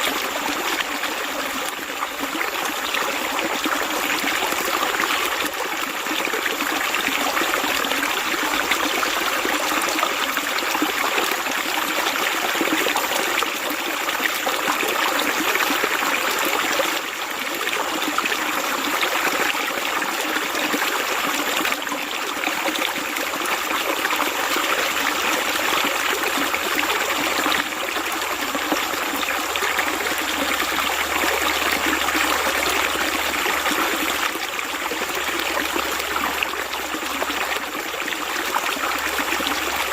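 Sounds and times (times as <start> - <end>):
running water flowing: 0.0 - 39.9.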